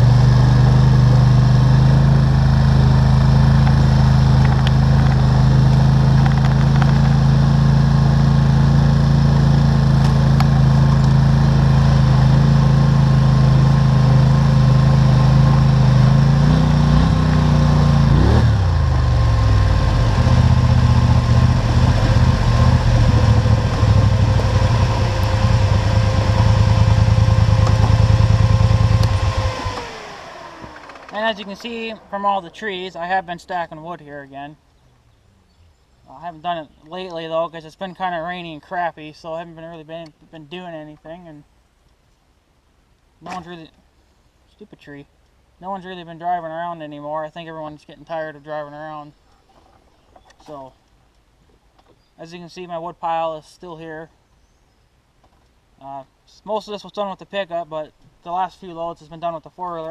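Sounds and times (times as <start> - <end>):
atv engine running: 0.0 - 34.0.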